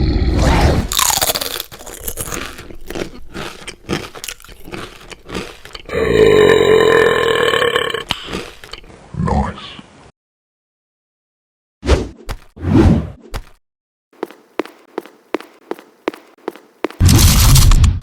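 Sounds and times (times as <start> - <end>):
crunching chewing clicks: 0.9 - 8.9.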